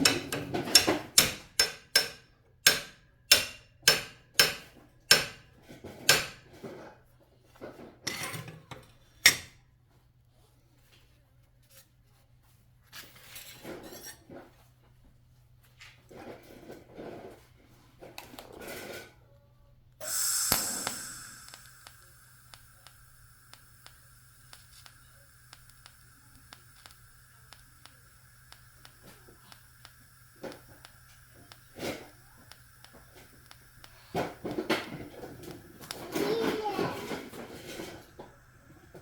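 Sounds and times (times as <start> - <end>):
faint ticks: 20.0 - 36.1
welding arc buzzing: 20.0 - 39.0.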